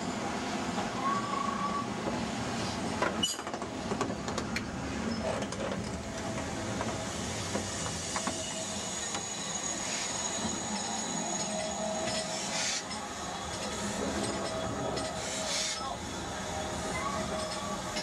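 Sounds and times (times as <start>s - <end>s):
train rolling rumble: 0.0s - 18.0s
faint high squeal: 8.0s - 15.9s.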